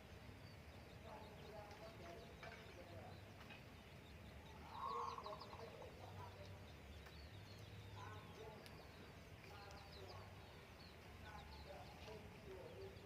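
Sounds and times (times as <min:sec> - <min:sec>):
high falling bird chirps: 0:00.0 - 0:13.0.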